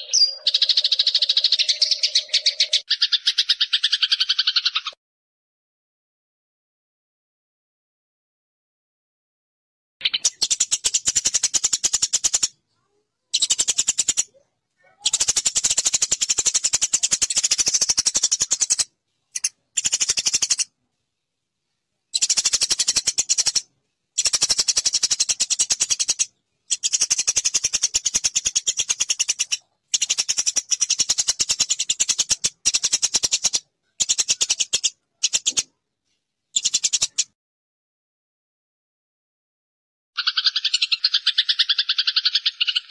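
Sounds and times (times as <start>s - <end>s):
sparrow chirping: 0.0s - 5.0s, 10.0s - 20.7s, 22.1s - 35.7s, 36.5s - 37.3s, 40.2s - 42.9s.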